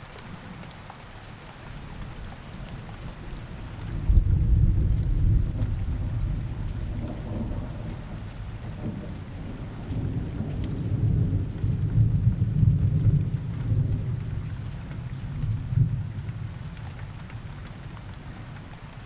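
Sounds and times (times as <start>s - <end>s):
steady rain: 0.0s - 19.0s
rolling thunder rumble: 3.6s - 16.7s.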